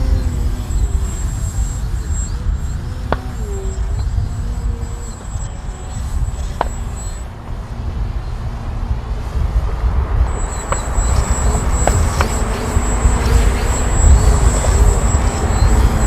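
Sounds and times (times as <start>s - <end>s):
electric motor whine of rc plane: 0.0s - 16.0s
wind buffeting microphone: 0.0s - 16.0s
sharp clicks: 10.4s - 16.0s.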